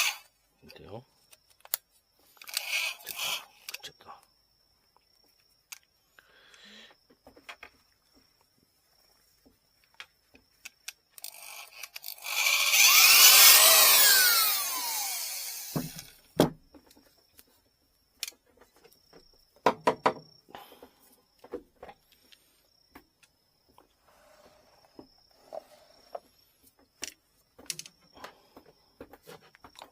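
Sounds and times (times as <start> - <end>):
power drill boring into bamboo: 0.0 - 0.3, 2.3 - 3.7, 11.2 - 16.2.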